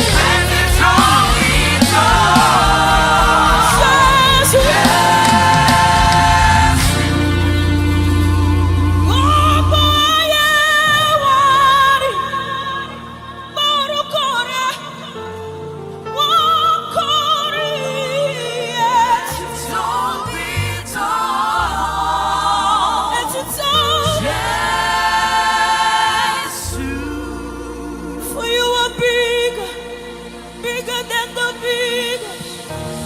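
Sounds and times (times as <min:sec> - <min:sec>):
bass notes: 0:00.0 - 0:11.2
voices singing with vibrato: 0:00.0 - 0:15.1, 0:16.3 - 0:33.0
keyboard chords: 0:00.0 - 0:33.0.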